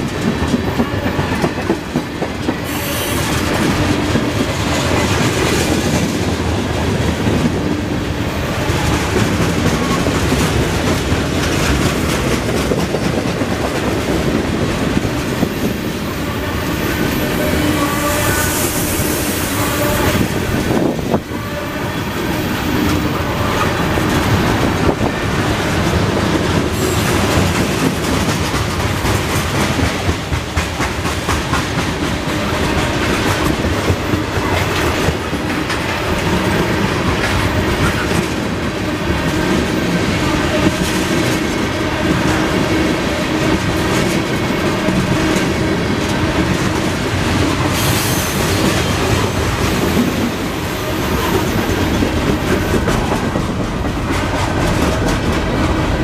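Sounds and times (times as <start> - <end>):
train wheels rumbling on rail: 0.0 - 56.0
wheels clicking over rail joints: 8.6 - 15.8.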